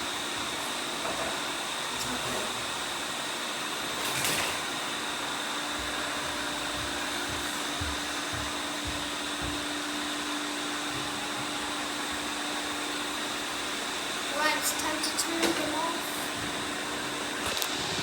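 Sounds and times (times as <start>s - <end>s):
robot vacuum cleaners whirring: 0.0s - 18.0s
soft low thumps: 5.8s - 9.8s.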